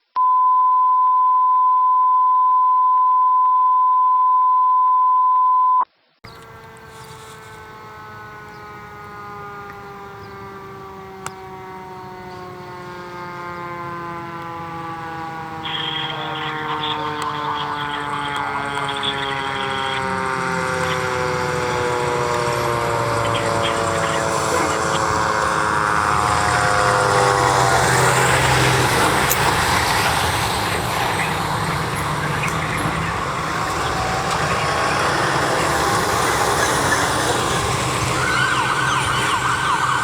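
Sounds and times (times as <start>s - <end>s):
steady single-pitch tone: 0.2s - 5.9s
fire engine siren: 6.3s - 40.0s.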